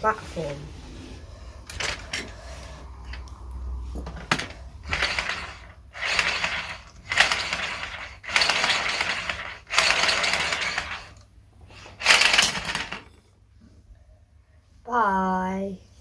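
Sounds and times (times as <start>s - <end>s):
marbles rolling on plastic track: 4.0s - 11.2s, 11.8s - 13.1s
marbles clicking on track pieces: 4.2s - 11.2s, 12.0s - 13.1s.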